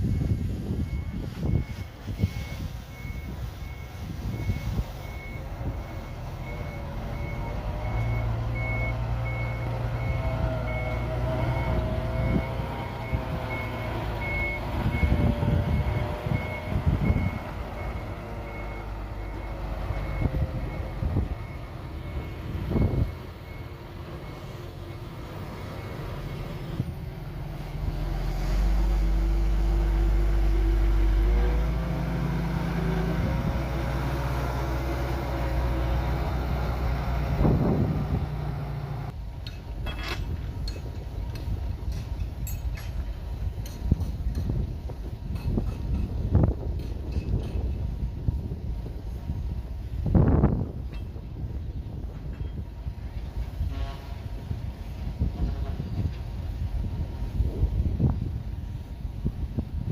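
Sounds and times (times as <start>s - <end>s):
reversing alarm beeping: 0.0s - 26.7s
heavy diesel machinery running: 0.0s - 59.9s
metallic clanks: 39.4s - 44.6s.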